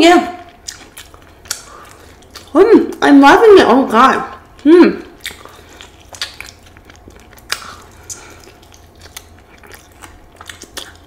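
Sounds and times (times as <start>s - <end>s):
person chewing chicken wing: 0.4s - 2.6s, 4.4s - 11.0s
wet mouth clicks and smacks: 0.5s - 2.6s, 5.1s - 11.0s.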